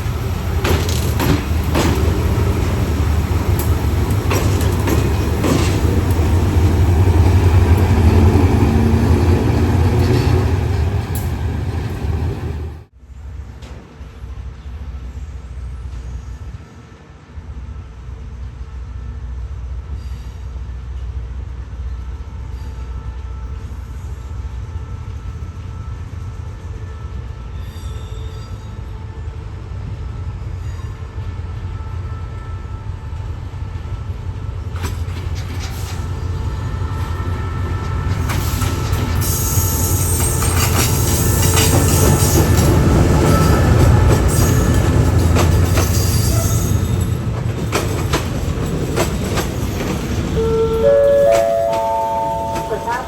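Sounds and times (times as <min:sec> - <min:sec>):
wheels clicking over rails: 0:00.0 - 0:12.1
train engine rumble: 0:00.0 - 0:53.0
high wheel squeal: 0:35.0 - 0:47.3.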